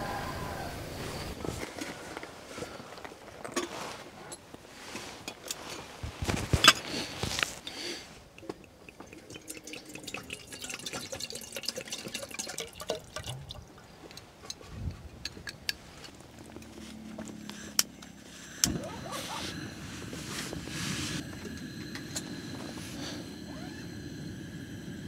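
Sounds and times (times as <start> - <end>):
water dripping: 8.2 - 14.6.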